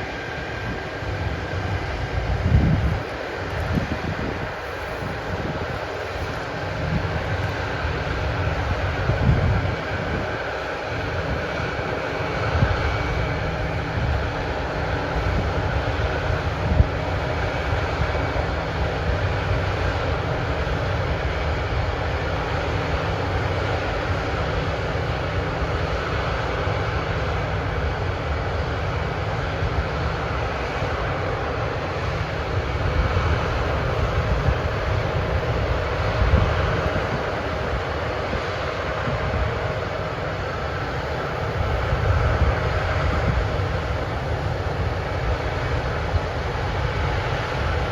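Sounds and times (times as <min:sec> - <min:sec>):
diesel machinery rumbling: 0:00.0 - 0:21.3, 0:32.0 - 0:47.9.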